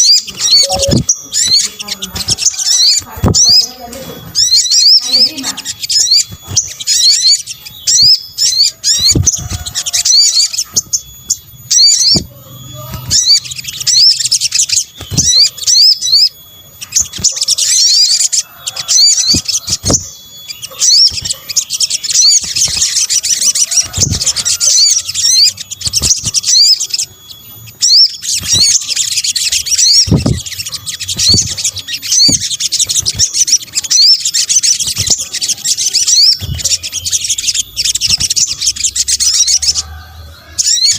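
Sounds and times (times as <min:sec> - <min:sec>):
bird chirps and trills: 0:00.0 - 0:40.9
low thumps: 0:30.0 - 0:30.6.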